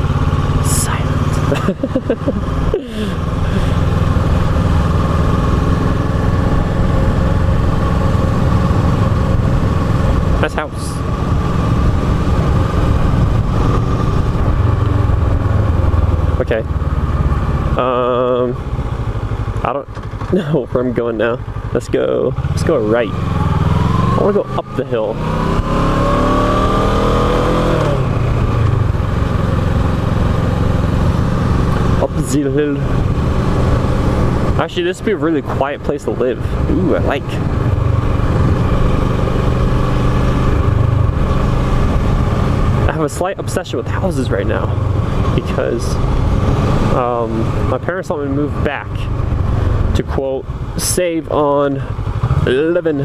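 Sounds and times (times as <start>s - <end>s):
motorcycle engine cruising: 0.0s - 53.0s
wind noise: 11.0s - 16.4s
motorcycle engine pulling away: 22.2s - 35.8s.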